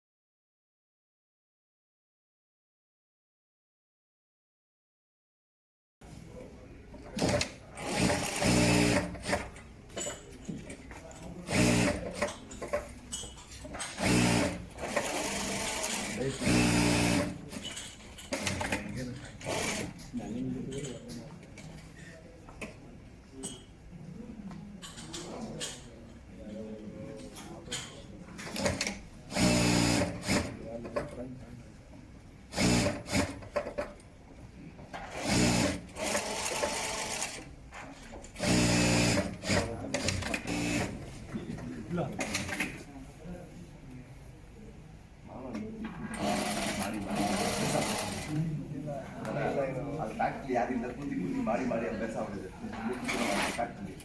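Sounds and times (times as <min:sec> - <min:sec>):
sewing machine stitching: 0:07.2 - 0:09.6, 0:11.5 - 0:12.8, 0:13.7 - 0:20.1, 0:28.4 - 0:30.6, 0:32.5 - 0:33.8, 0:35.0 - 0:37.5, 0:38.3 - 0:41.0, 0:46.1 - 0:48.4, 0:53.0 - 0:53.8.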